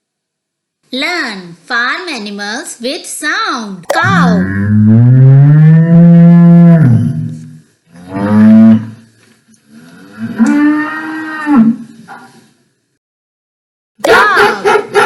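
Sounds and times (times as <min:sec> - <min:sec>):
cow mooing: 0:04.1 - 0:09.0, 0:09.8 - 0:11.9.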